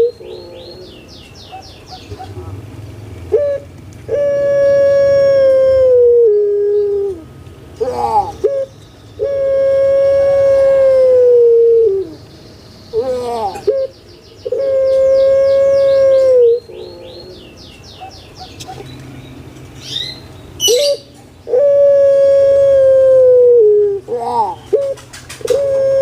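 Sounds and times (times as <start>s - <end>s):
small bird chirping: 0.0s - 2.5s, 12.0s - 21.5s
dove cooing: 0.0s - 2.6s, 3.2s - 12.3s, 12.9s - 18.9s, 20.6s - 26.0s.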